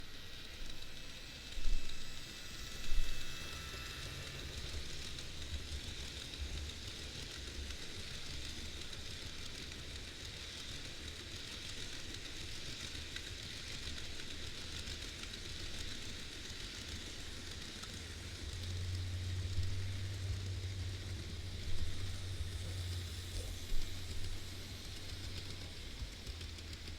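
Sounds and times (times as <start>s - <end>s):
low motor hum: 0.0s - 6.8s, 15.6s - 26.9s
model train wheels rolling on rail: 0.0s - 26.9s.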